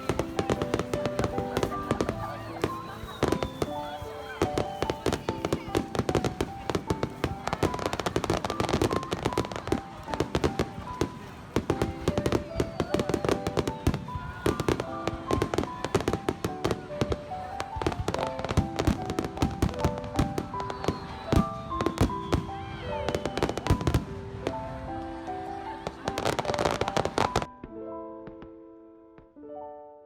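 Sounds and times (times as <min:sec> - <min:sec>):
fireworks bangs and crackles: 0:00.0 - 0:27.5
piano music: 0:00.0 - 0:30.0.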